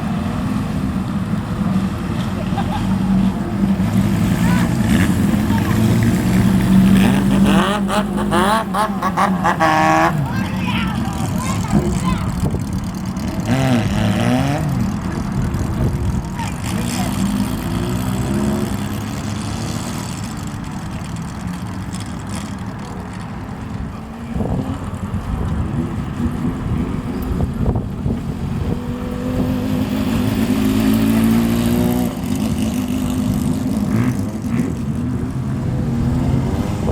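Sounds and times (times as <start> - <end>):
motorcycle engines revving: 0.0 - 36.9.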